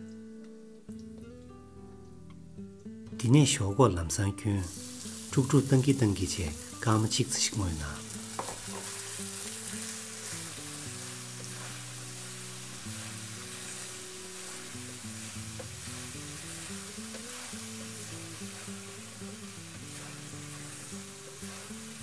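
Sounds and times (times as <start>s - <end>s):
background music with held notes: 0.0s - 22.0s
potato strips sizzling in oil: 4.6s - 22.0s.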